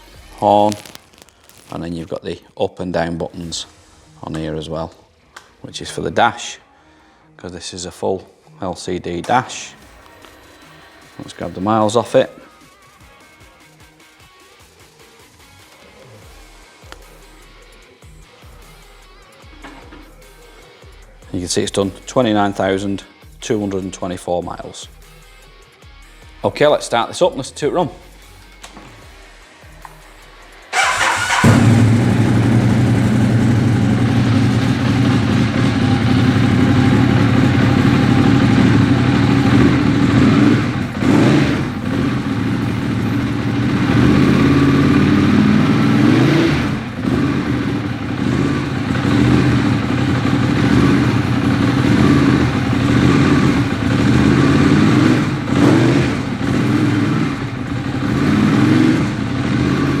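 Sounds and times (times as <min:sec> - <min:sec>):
motorcycle engine revving: 0:00.0 - 0:01.8, 0:30.7 - 1:00.0
motorcycle starter whirr: 0:30.7 - 0:59.7.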